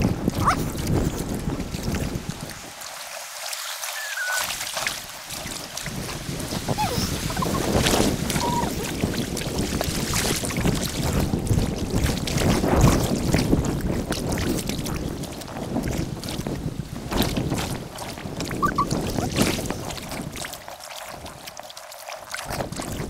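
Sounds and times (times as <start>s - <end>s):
wind rumbling on microphone: 0.0s - 3.2s, 4.0s - 23.0s
paddle splashing water: 0.0s - 23.0s.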